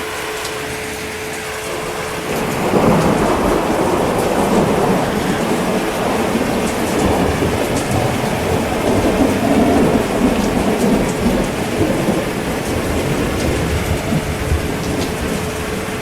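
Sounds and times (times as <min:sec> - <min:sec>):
heavy rain: 0:00.0 - 0:16.0
rolling thunder: 0:01.6 - 0:16.0.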